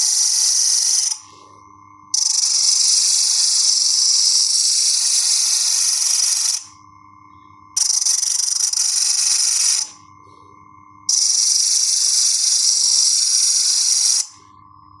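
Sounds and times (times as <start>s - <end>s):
loud hiss bursts: 0.0s - 1.2s, 2.2s - 6.7s, 7.8s - 10.0s, 11.1s - 14.3s
faint steady hum: 0.0s - 15.0s.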